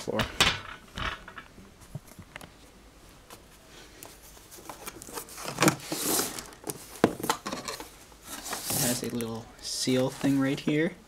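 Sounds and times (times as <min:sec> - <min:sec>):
cardboard rustling scrape: 0:04.2 - 0:07.0, 0:08.2 - 0:09.2.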